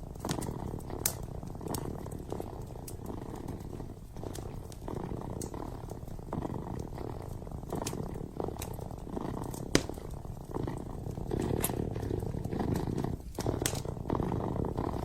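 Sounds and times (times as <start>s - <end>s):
kitten purring: 0.0s - 15.0s
wood fire crackling and popping: 0.0s - 15.0s.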